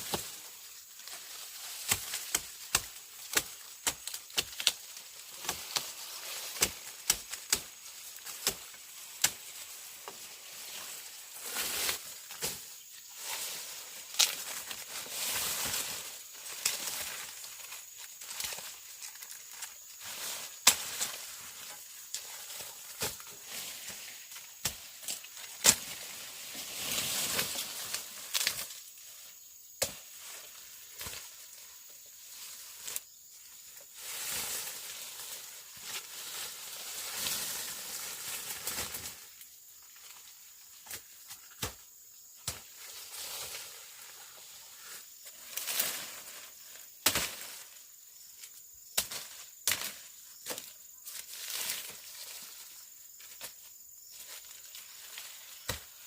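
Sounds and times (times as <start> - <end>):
rustling: 0.0 - 39.4.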